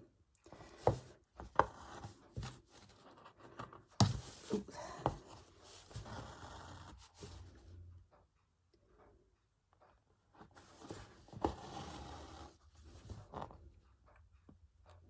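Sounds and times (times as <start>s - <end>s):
rustling and scratching of stitching: 0.6s - 7.9s, 10.0s - 13.9s.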